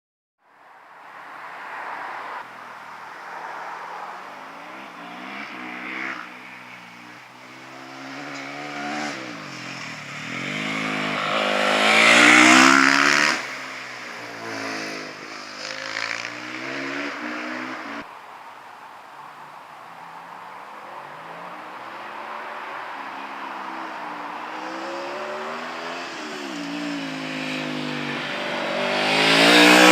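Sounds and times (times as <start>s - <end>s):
motorcycle engine revving: 4.6s - 18.1s, 21.2s - 29.9s.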